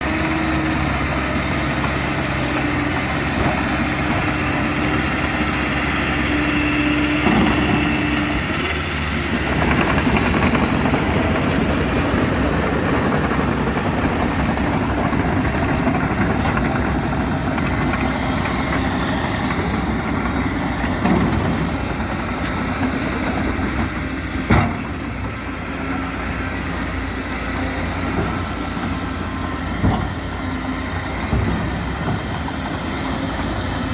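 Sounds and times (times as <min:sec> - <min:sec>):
diesel engines of heavy machinery: 0:00.0 - 0:33.9.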